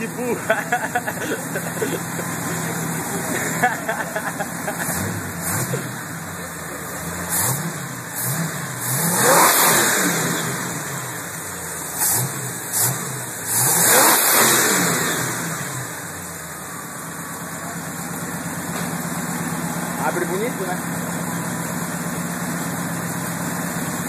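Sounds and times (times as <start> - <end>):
engine revving: 0.0 - 16.3.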